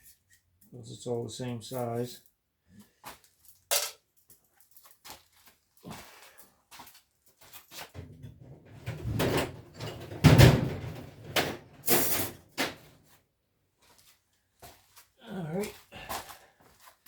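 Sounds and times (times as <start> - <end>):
clattering knocks of handled objects: 3.7 - 4.0.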